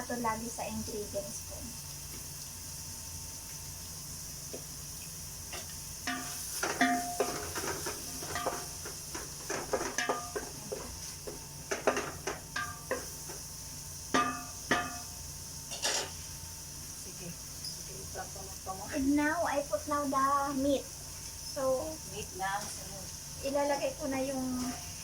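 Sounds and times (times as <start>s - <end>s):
faint hiss: 0.0s - 25.0s
spoon clinking against pot: 5.5s - 8.7s, 9.7s - 10.6s, 11.7s - 13.1s, 14.1s - 16.2s.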